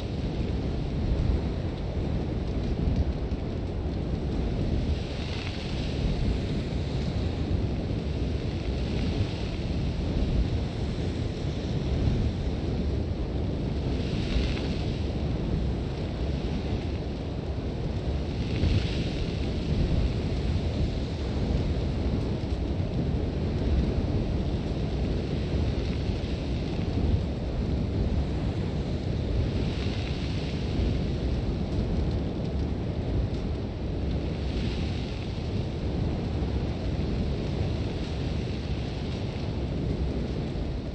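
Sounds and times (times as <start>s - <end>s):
heavy wind rumble: 0.0s - 40.9s
hissing blown sand: 4.5s - 22.4s, 23.0s - 31.9s.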